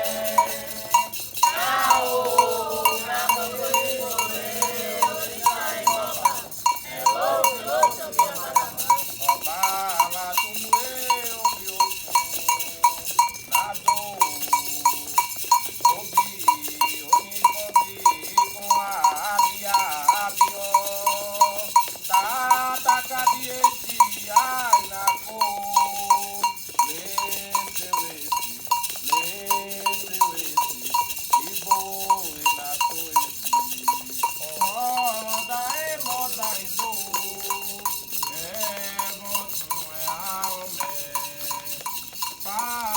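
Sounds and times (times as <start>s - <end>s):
metal bell struck: 0.0s - 29.3s
voices chanting: 0.0s - 42.9s.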